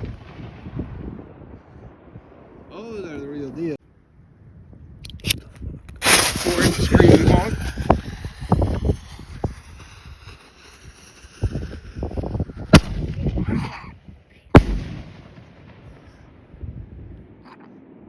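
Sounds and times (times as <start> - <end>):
rumbling and popping: 5.1 - 13.9, 14.5 - 15.3
firework rockets bursting: 5.2 - 13.5, 14.5 - 16.3.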